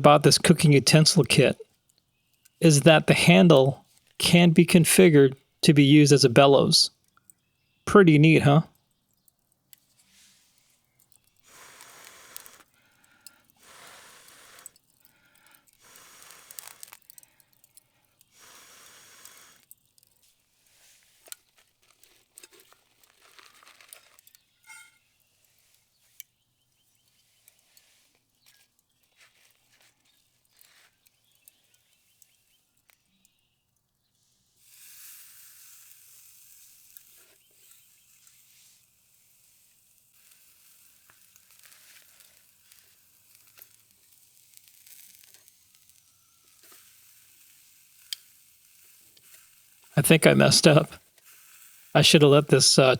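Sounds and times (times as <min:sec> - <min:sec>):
air blown onto charcoal hissing: 0:11.5 - 0:12.8, 0:13.6 - 0:14.8, 0:15.8 - 0:17.0, 0:18.2 - 0:19.8, 0:51.2 - 0:51.9.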